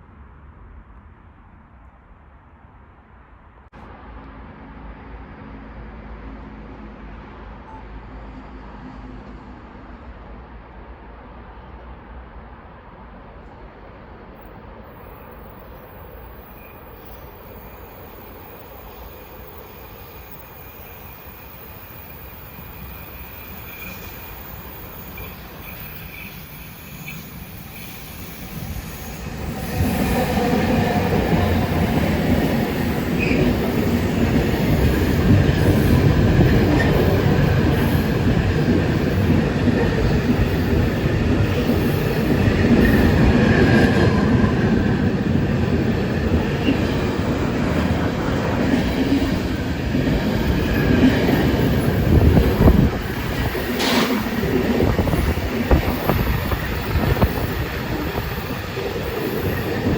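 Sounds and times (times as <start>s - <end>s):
train rumbling past on rails: 0.0s - 59.9s.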